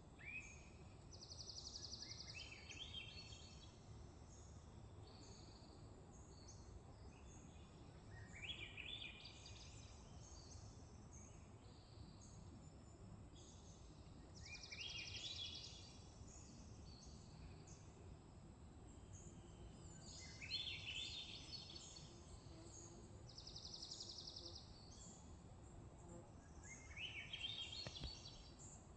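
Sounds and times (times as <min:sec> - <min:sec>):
faint bird chirps: 0:18.9 - 0:28.9.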